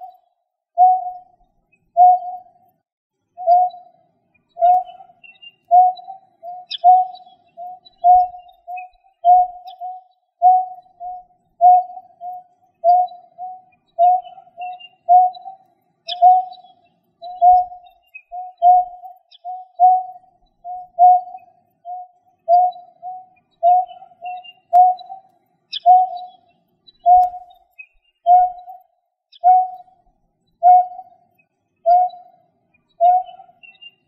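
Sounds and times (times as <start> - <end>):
faint high bird chirps: 0.0 - 34.0
bird hooting two-part call: 0.8 - 1.3, 2.0 - 2.5, 3.4 - 3.9, 4.6 - 26.4, 28.2 - 28.8, 29.4 - 30.0, 30.6 - 31.1, 31.9 - 32.4, 33.0 - 34.0.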